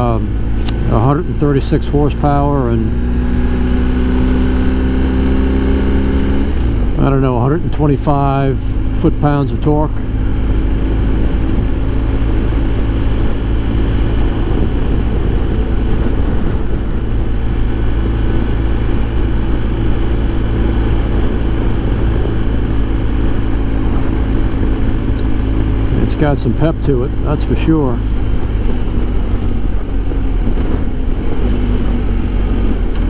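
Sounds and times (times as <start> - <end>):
motorcycle engine drone: 0.0 - 33.0
wind rush inside helmet: 9.8 - 33.0.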